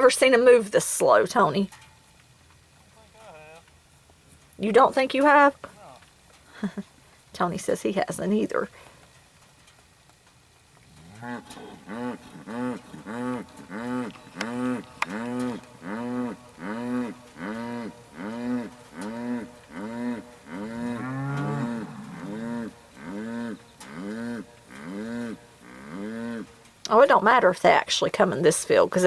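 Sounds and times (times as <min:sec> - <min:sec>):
bull bellowing: 0:10.8 - 0:26.6.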